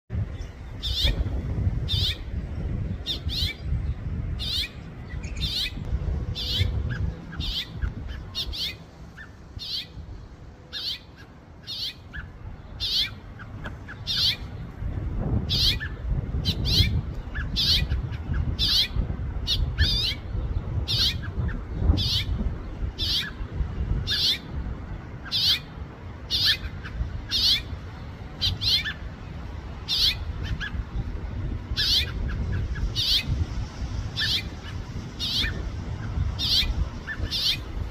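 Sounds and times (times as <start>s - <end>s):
finch chirping: 0.3s - 1.2s, 1.9s - 2.3s, 3.0s - 10.0s, 10.7s - 14.6s, 15.5s - 22.4s, 23.0s - 23.4s, 24.0s - 24.5s, 25.2s - 25.7s, 26.3s - 29.0s, 29.8s - 30.8s, 31.8s - 33.3s, 34.1s - 37.7s.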